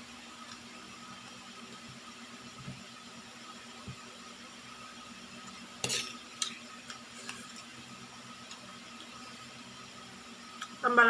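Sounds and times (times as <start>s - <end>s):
steady background hum: 0.0s - 11.0s
utensil scraping plate: 5.8s - 6.2s.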